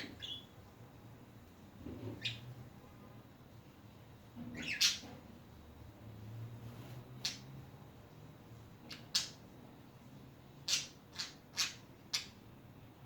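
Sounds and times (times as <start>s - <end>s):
budgerigars squawking and chirping: 0.0s - 0.5s, 4.5s - 5.2s, 8.9s - 9.4s, 10.6s - 12.4s.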